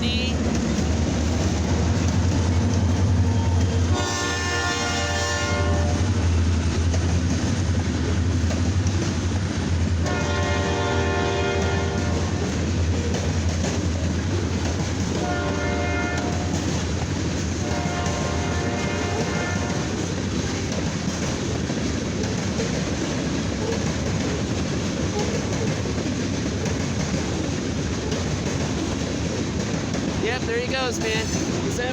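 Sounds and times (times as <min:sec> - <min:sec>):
locomotive low rumble: 0:00.0 - 0:31.7
train horn blasts: 0:03.4 - 0:06.1, 0:10.0 - 0:12.3, 0:15.2 - 0:16.6, 0:17.6 - 0:19.9.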